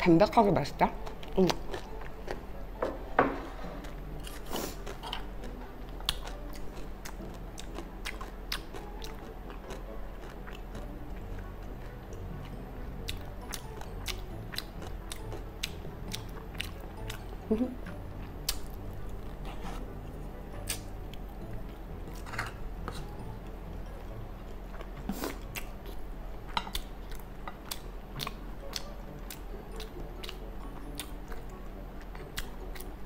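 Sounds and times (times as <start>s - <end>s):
person chewing with mouth clicks: 24.7s - 26.0s, 26.7s - 31.6s.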